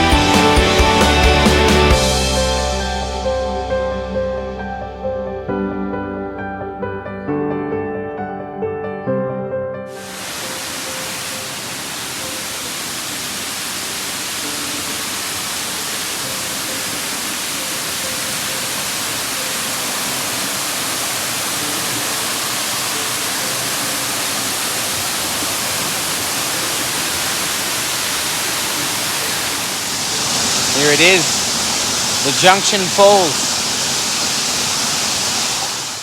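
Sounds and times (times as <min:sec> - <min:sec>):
waterfall rushing: 0:09.9 - 0:36.0.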